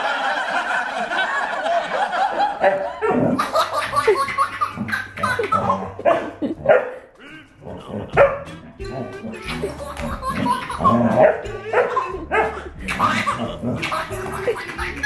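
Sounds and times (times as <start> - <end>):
dog barking: 2.6 - 3.4, 4.8 - 7.1, 7.9 - 8.5, 11.1 - 13.9.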